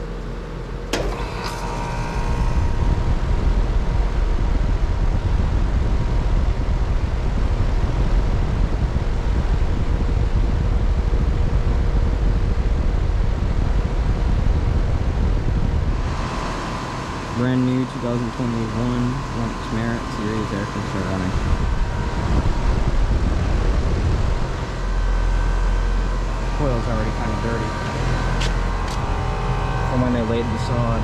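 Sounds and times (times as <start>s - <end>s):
air conditioner whirring: 0.0s - 31.0s
air conditioner click: 0.8s - 2.7s.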